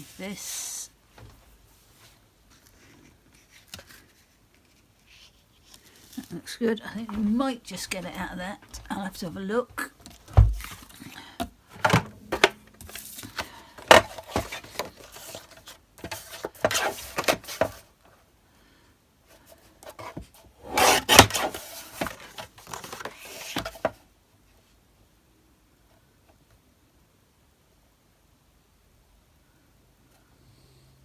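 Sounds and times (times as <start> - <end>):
card stock scraping and rustling: 2.5 - 9.3, 10.0 - 17.9, 19.8 - 24.0.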